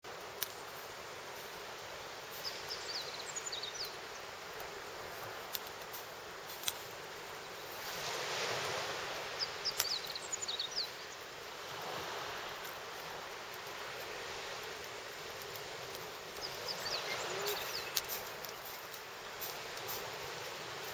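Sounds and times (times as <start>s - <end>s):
bonfire crackling and popping: 0.1s - 1.3s, 4.4s - 7.9s, 12.3s - 20.9s
small birds chirping: 1.9s - 4.4s, 9.2s - 11.6s, 12.7s - 20.9s.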